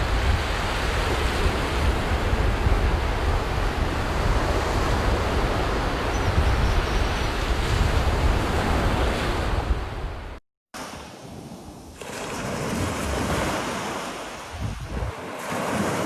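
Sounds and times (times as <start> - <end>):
wind buffeting microphone: 0.0 - 10.4, 14.4 - 15.4
ocean surf washing onto beach: 0.0 - 16.0.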